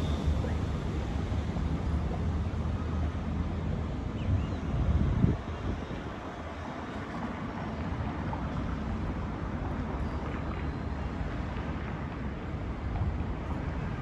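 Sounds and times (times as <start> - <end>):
city traffic rumble: 0.0 - 14.0
wind blowing over microphone: 4.1 - 6.6.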